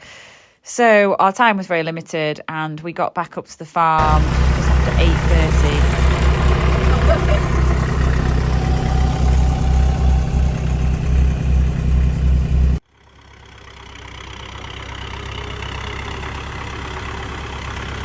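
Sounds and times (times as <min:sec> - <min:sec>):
quieter engine: 0:04.0 - 0:18.0
tractor engine running: 0:04.0 - 0:18.0.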